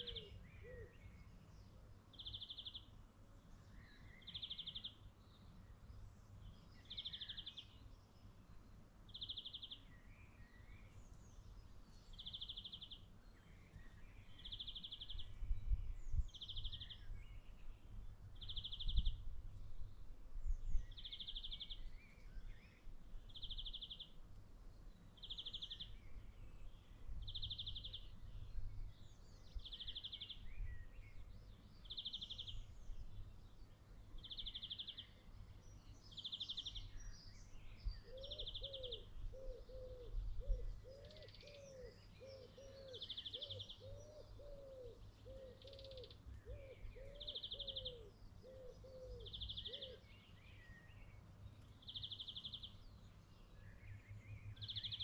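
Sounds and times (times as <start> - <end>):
low arching bird calls: 0.0 - 1.3, 36.1 - 51.2
birds chirping: 34.2 - 55.0.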